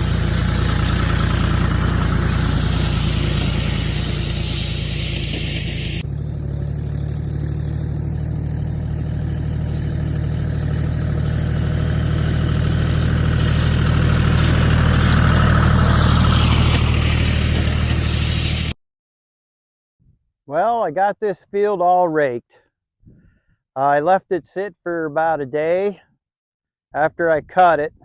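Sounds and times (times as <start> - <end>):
tractor engine running: 0.0 - 18.8.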